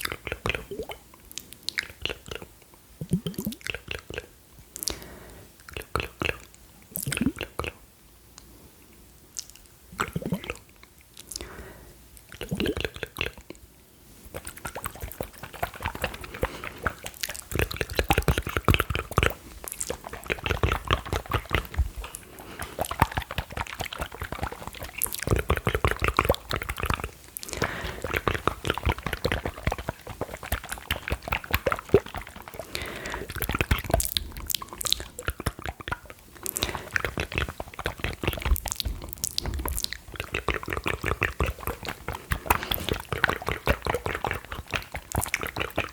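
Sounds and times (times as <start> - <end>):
gulping noises: 0.0 - 7.8, 9.9 - 11.6, 12.2 - 13.6, 14.2 - 45.9
wet mouth clicks and smacks: 0.0 - 8.5, 9.3 - 11.5, 12.2 - 13.6, 14.3 - 45.9
liquid in small glass vials: 3.0 - 3.9, 5.8 - 7.7, 9.4 - 11.5, 12.2 - 13.5, 14.2 - 45.9.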